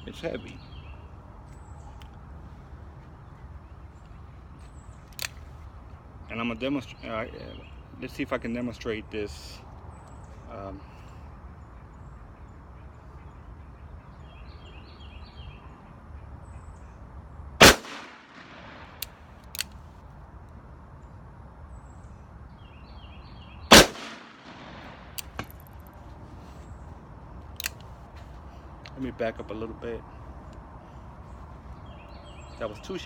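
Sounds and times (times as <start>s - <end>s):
revolver gunshots with echo: 17.6s - 19.2s, 23.7s - 25.5s
faint clicks: 18.9s - 20.6s.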